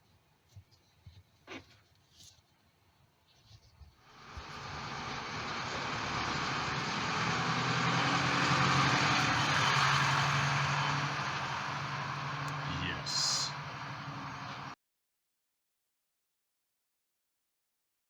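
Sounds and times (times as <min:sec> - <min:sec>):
rushing noise: 0:04.1 - 0:14.8
vehicle engine humming: 0:04.1 - 0:14.8.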